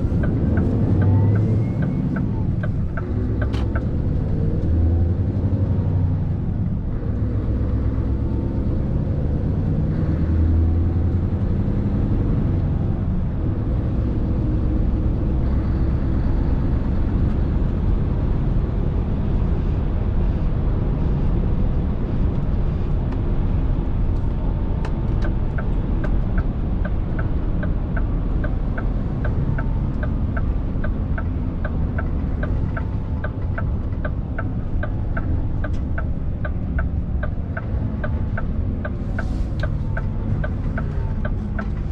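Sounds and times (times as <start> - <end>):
regular ticking clicks: 0.0 - 4.7, 24.8 - 41.9
diesel engine rumbling: 0.0 - 41.9.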